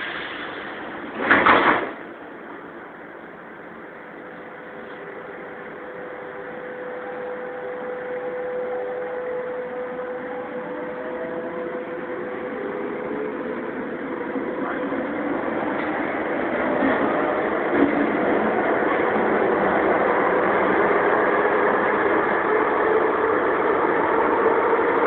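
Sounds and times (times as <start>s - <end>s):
train electric whine: 0.0s - 25.0s
train running noise: 0.0s - 25.0s.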